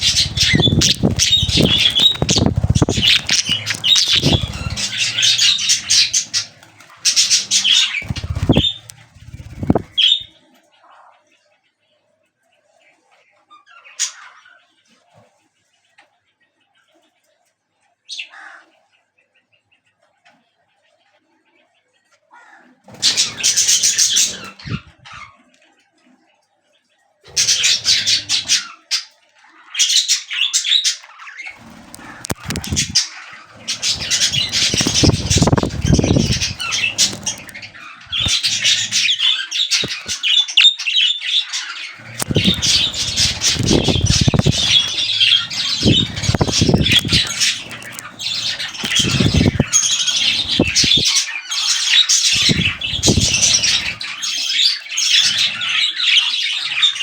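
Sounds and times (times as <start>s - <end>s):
wing flapping: 0.0s - 10.3s, 22.9s - 24.9s, 31.6s - 40.4s, 42.0s - 51.2s, 52.2s - 54.2s
budgerigars chattering and squawking: 0.0s - 10.4s, 22.4s - 25.4s, 27.3s - 57.0s.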